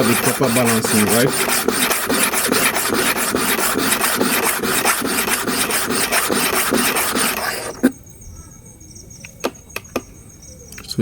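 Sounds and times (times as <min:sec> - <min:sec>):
metal blade rasping on stone: 0:00.0 - 0:07.9.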